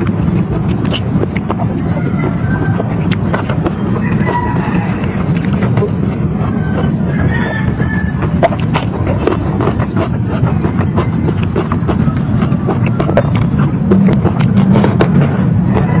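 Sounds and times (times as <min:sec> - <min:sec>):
chewing and crunching: 0:00.0 - 0:16.0
mouth clicks and smacks: 0:00.0 - 0:16.0
steady low rumble: 0:00.0 - 0:16.0.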